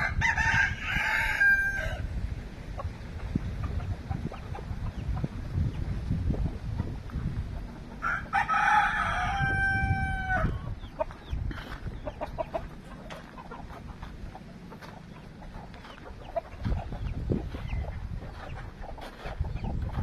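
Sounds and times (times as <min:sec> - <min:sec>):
rooster crowing: 0:00.0 - 0:02.1, 0:08.0 - 0:10.7
wind rumble on microphone: 0:00.0 - 0:20.0
chickens clucking softly: 0:02.6 - 0:20.0.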